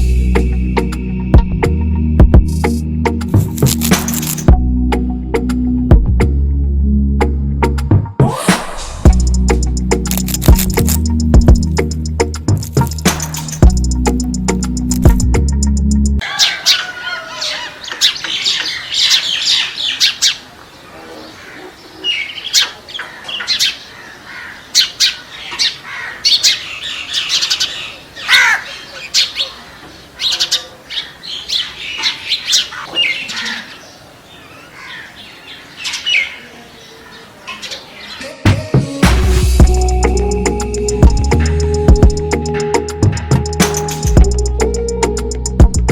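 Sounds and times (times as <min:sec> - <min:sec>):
birds chirping and squawking: 0:16.2 - 0:38.5.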